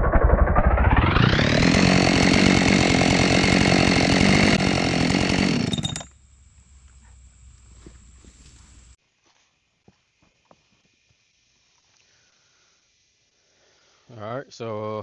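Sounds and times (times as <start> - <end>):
chainsaw cutting log: 1.1 - 9.0.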